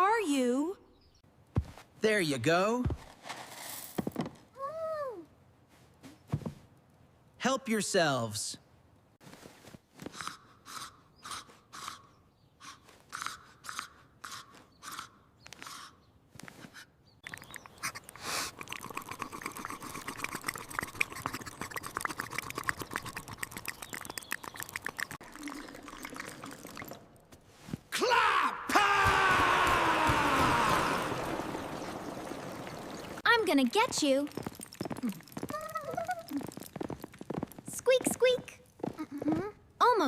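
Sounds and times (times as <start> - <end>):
cartoon crunchy munching: 17.2 - 25.3.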